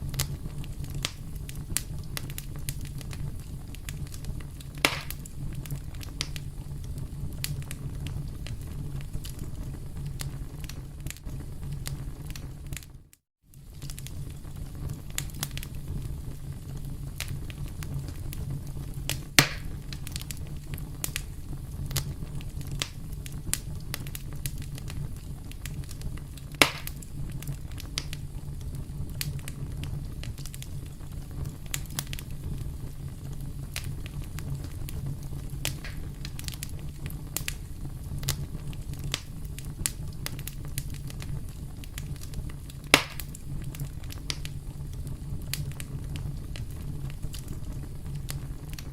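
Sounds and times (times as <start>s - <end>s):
fire crackles and pops: 0.0s - 48.9s
wood fire rumbling: 0.0s - 48.9s.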